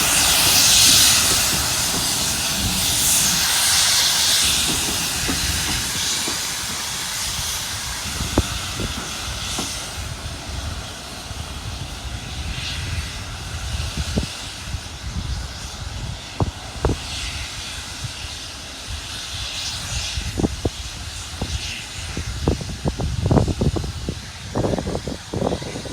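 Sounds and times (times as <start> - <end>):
steam locomotive hissing: 0.0 - 25.9.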